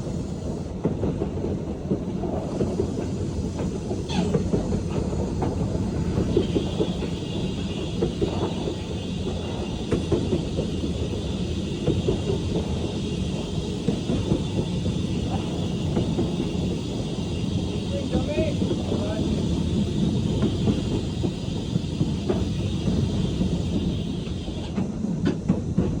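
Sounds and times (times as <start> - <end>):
train rumble: 0.0 - 26.0
wheels knocking on track: 0.6 - 26.0.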